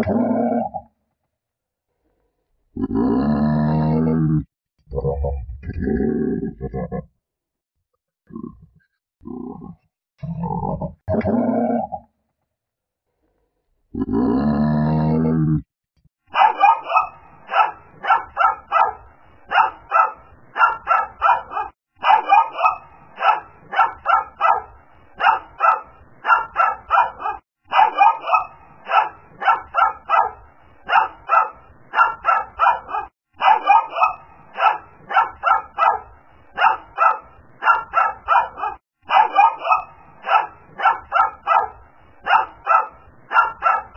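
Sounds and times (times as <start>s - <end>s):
low grunt: 0.0s - 0.8s, 2.7s - 7.1s, 13.9s - 15.7s
small dog yapping: 16.4s - 24.6s, 25.2s - 36.0s, 36.6s - 41.7s, 42.3s - 43.9s.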